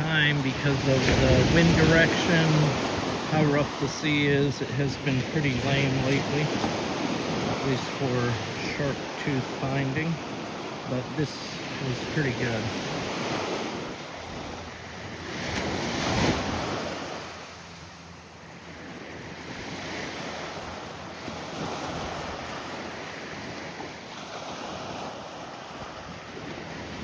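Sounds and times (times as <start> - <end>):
wind on microphone: 0.0 - 17.7
surf breaking on beach: 0.0 - 27.0.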